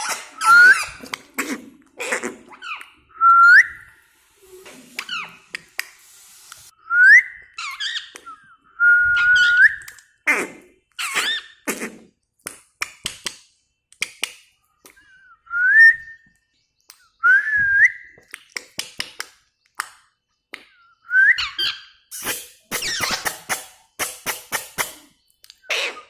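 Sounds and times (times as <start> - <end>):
parrot whistling: 21.1 - 21.8
harsh parrot calls: 21.4 - 26.0.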